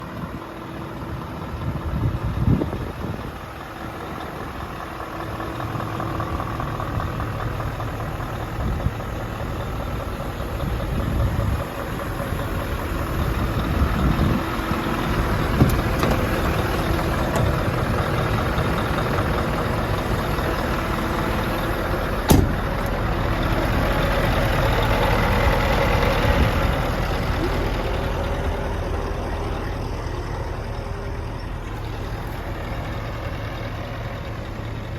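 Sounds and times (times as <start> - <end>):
diesel truck engine idling: 0.0 - 34.9.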